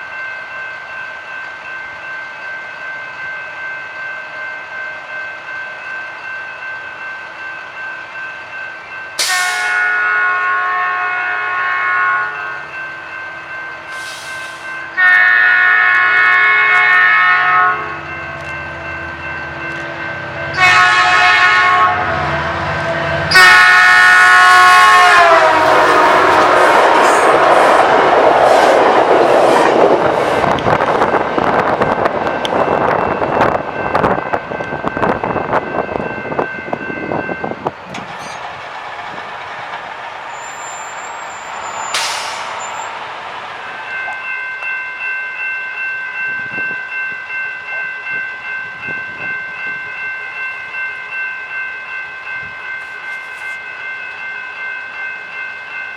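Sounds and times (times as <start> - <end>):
crossing warning bells: 0.0 - 55.9
train horn blasts: 9.2 - 12.6, 14.0 - 18.4, 20.5 - 27.5
train wheels clattering: 37.6 - 44.7.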